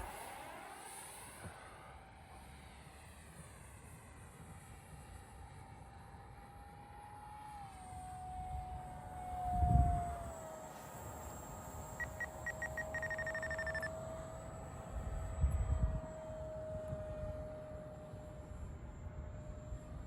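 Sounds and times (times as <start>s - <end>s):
electric ducted fan whine: 0.0s - 0.8s, 6.4s - 20.0s
short electronic beeps: 12.0s - 13.9s.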